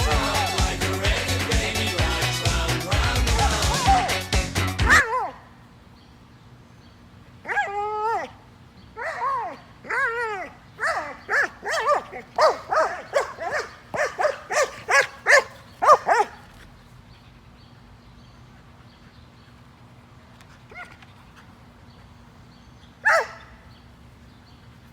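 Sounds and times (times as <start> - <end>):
dog giving high-pitched cries: 4.8 - 5.4, 7.4 - 8.4, 9.0 - 16.4, 23.0 - 23.4.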